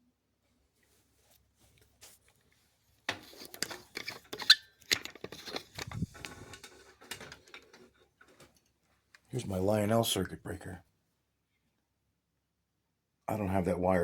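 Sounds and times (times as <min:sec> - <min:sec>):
objects handled on a tabletop: 0:00.8 - 0:09.3.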